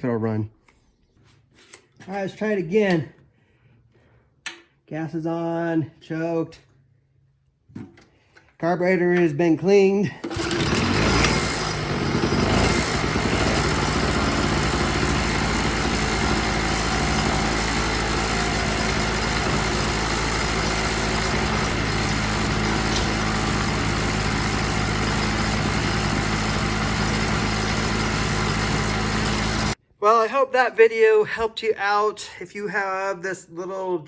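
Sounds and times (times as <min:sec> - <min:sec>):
generator engine running: 0:10.2 - 0:29.8.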